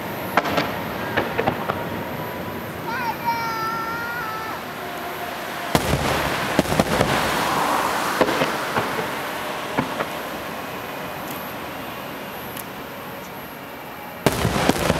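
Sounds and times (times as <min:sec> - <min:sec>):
fireworks bangs: 0:00.0 - 0:14.9
fireworks crackling: 0:00.0 - 0:14.9.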